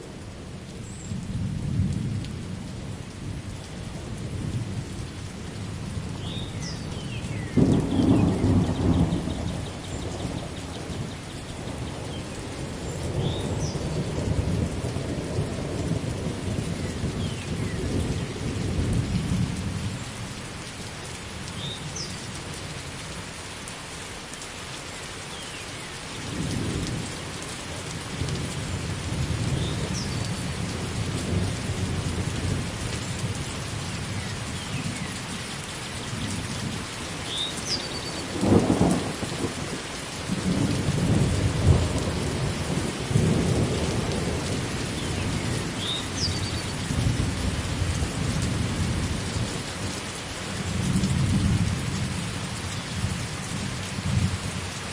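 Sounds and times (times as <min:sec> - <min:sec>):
steady rain falling: 0:00.0 - 0:54.9
thunder rumbling: 0:07.2 - 0:20.1, 0:38.0 - 0:50.0.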